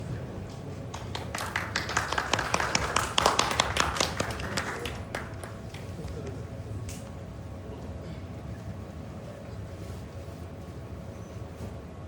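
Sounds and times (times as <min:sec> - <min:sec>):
crowd murmur: 0:00.0 - 0:10.1
audience clapping: 0:00.9 - 0:06.4.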